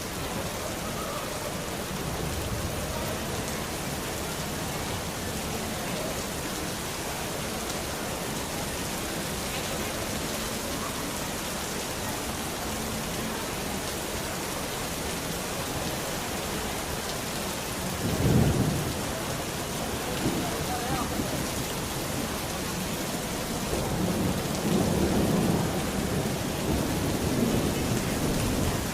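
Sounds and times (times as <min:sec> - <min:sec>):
heavy rain falling: 0:00.0 - 0:28.9
low rumble of thunder: 0:17.9 - 0:22.4, 0:23.6 - 0:28.9.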